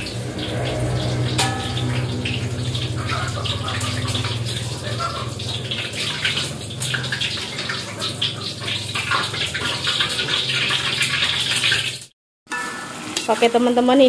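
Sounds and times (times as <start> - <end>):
metal spatula scraping a wok: 0.0 - 4.0, 12.5 - 13.8
low steady hum: 0.0 - 8.0
food sizzling in a wok: 5.7 - 14.0.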